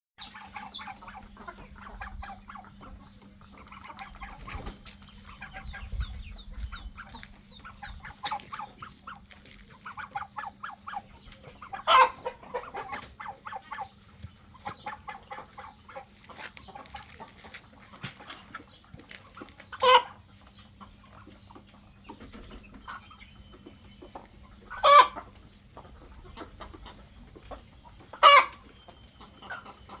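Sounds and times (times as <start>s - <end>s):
chickens clucking: 0.2s - 30.0s
loud chicken calls: 11.7s - 13.5s, 19.8s - 20.2s, 24.7s - 25.2s, 28.2s - 28.7s.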